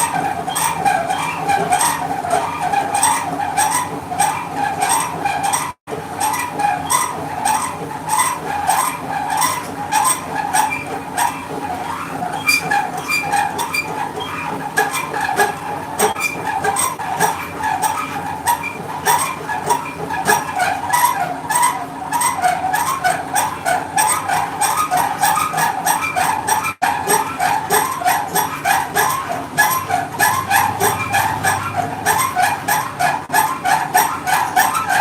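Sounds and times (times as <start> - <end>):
wavering squeal: 0.0 - 23.0
motor hum: 0.0 - 35.0.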